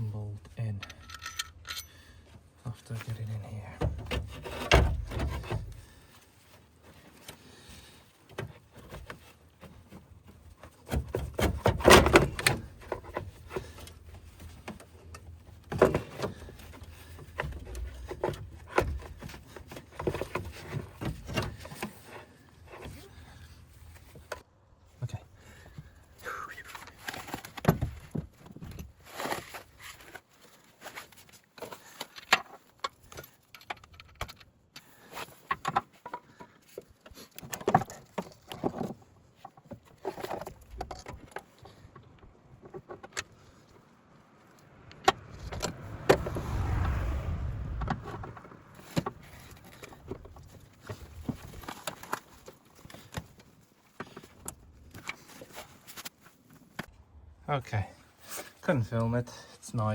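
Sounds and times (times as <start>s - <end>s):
metal tools clinking: 0.6s - 2.1s
low rumble: 44.6s - 49.6s.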